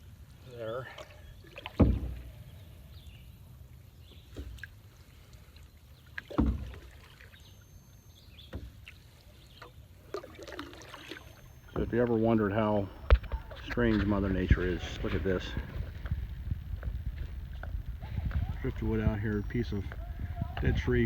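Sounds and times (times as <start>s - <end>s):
water noise: 0.0s - 21.0s
paddle knocking on canoe: 6.3s - 6.8s, 11.6s - 21.0s.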